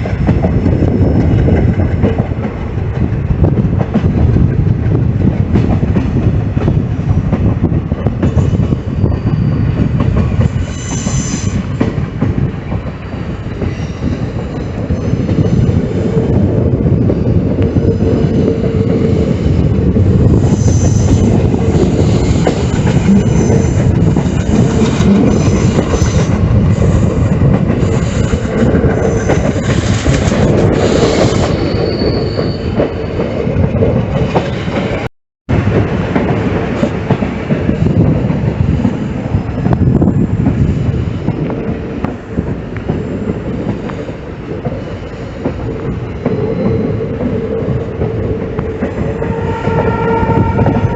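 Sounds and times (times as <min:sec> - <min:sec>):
train wheels rumbling on track: 0:00.0 - 0:50.9
high-pitched wheel squeals: 0:08.4 - 0:11.7, 0:30.8 - 0:33.2, 0:49.0 - 0:50.9.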